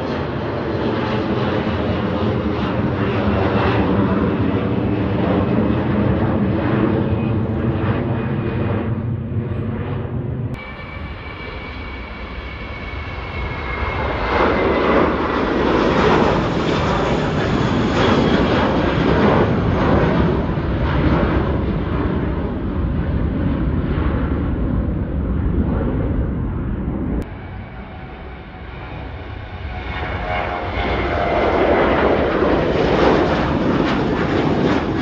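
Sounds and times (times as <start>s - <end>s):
airliner engines at takeoff power: 0.0s - 35.0s
faint falling whine: 10.5s - 14.1s.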